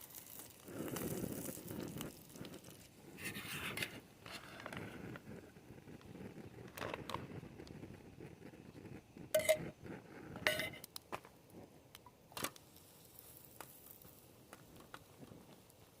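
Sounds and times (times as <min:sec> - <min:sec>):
clatters with short ring: 0:09.4 - 0:09.7
objects clinking and knocking: 0:09.4 - 0:09.7, 0:10.4 - 0:10.8.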